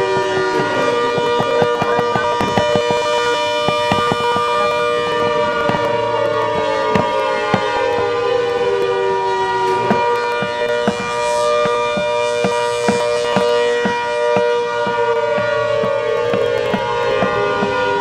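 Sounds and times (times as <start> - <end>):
siren sounding steady tones: 0.0 - 18.0.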